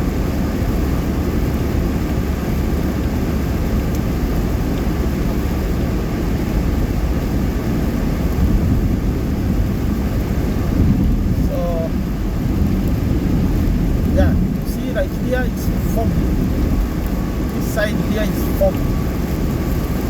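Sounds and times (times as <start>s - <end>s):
car engine drone: 0.0s - 20.0s
tyres on wet road: 0.0s - 20.0s
wind drone: 8.2s - 20.0s.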